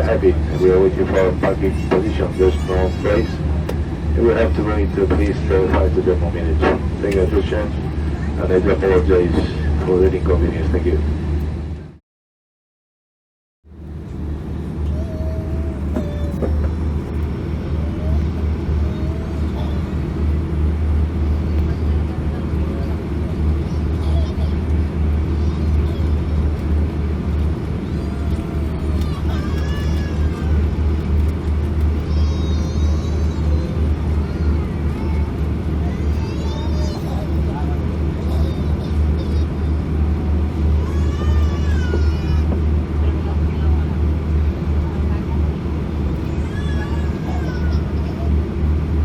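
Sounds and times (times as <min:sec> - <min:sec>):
aircraft cabin drone: 0:00.0 - 0:12.0, 0:13.7 - 0:49.0.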